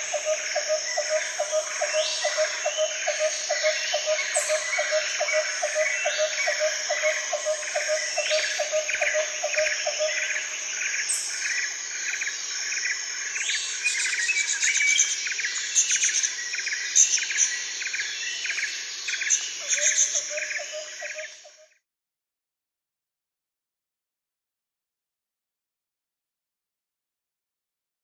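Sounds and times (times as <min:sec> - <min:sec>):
insects trilling: 0:00.0 - 0:21.8.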